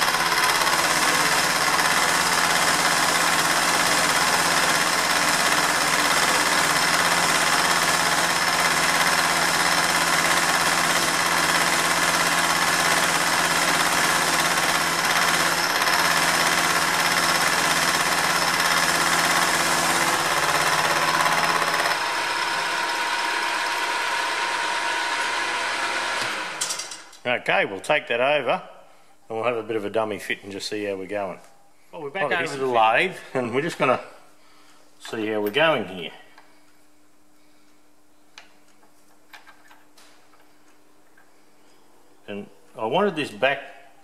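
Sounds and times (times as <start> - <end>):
milling machine running: 0.0 - 27.0.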